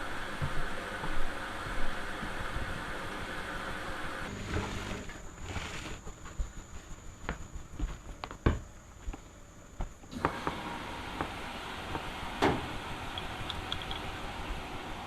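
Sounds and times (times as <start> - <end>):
washing machine running: 0.0 - 5.9, 10.1 - 15.0.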